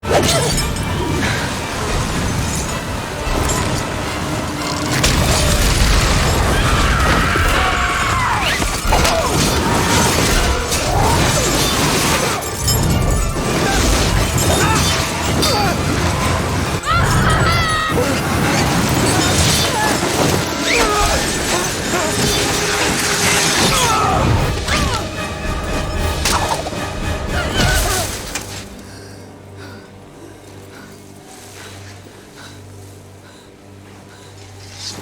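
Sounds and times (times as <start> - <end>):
dramatic music: 0.0 - 35.0
shouted voices: 16.8 - 18.6.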